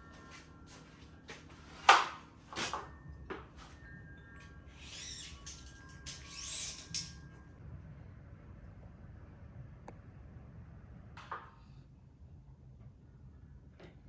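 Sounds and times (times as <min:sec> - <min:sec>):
faint ringing tones: 0:00.0 - 0:09.4.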